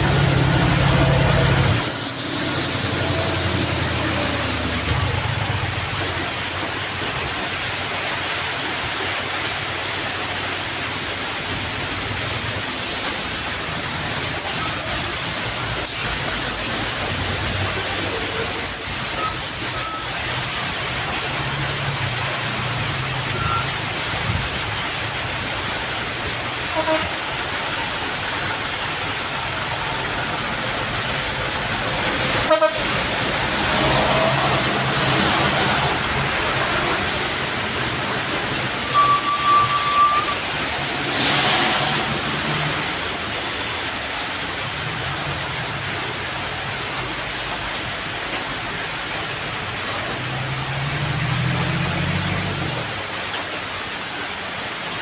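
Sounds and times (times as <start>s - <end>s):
truck engine and tyres rumbling: 0.0s - 55.0s
truck horn toot: 26.7s - 27.2s, 32.5s - 33.0s, 38.8s - 40.4s.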